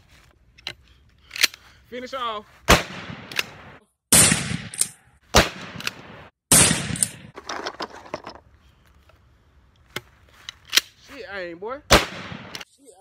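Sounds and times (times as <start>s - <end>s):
gunshots with reverberation: 2.7s - 7.4s, 11.9s - 12.7s.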